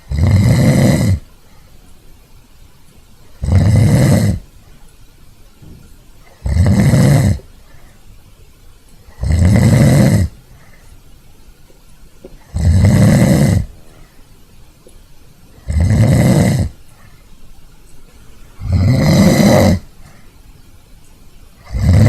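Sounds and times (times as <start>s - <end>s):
dog snoring: 0.0s - 1.3s, 3.4s - 4.5s, 6.2s - 7.5s, 9.0s - 10.8s, 12.3s - 14.1s, 15.5s - 17.1s, 18.6s - 20.0s, 21.6s - 22.0s.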